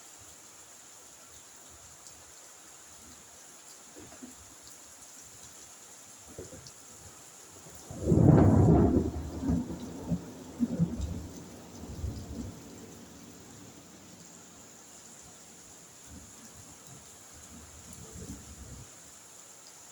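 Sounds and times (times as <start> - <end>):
rain hissing: 0.0 - 19.9
thunder clap and rumbling: 7.9 - 13.8.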